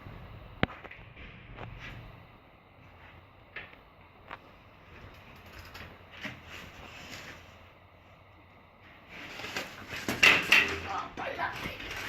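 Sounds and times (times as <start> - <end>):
bicycle parts creaking: 4.9 - 7.6, 9.1 - 12.0
bicycle parts clicking: 5.1 - 6.4.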